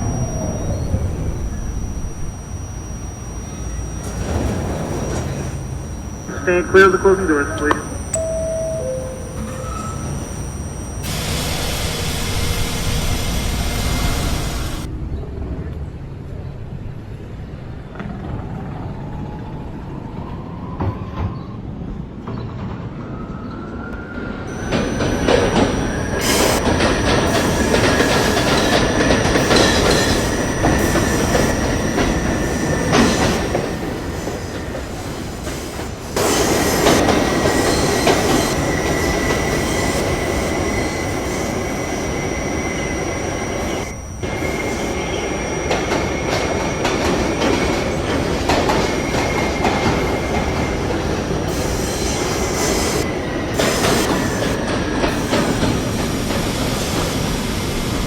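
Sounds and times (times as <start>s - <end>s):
high wheel squeal: 0.0s - 14.9s, 24.5s - 57.6s
wheel and rail noise: 0.0s - 14.9s, 24.5s - 58.0s
subway train motor whine: 0.0s - 58.0s.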